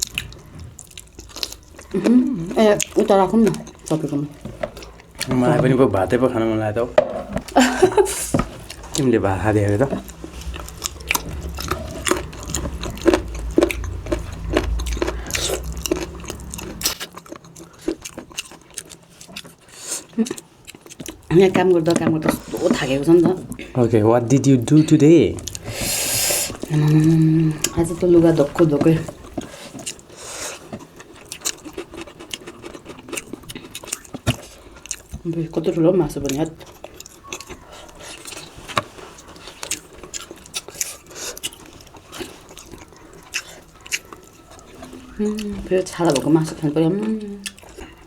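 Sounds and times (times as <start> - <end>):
person chewing food: 0.0 - 48.0
low hum: 7.5 - 17.2.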